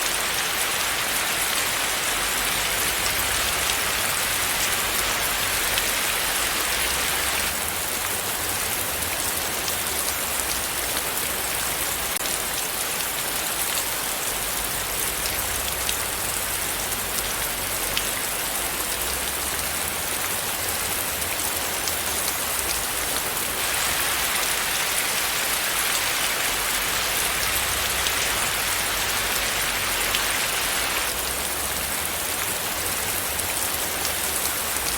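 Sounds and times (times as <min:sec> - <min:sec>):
raindrops pattering on surface: 0:00.0 - 0:34.9
steady rain hiss: 0:00.0 - 0:34.9.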